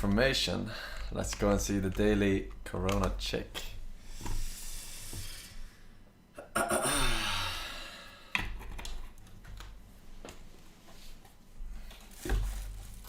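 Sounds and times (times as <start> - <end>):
person sighing: 6.4 - 8.4.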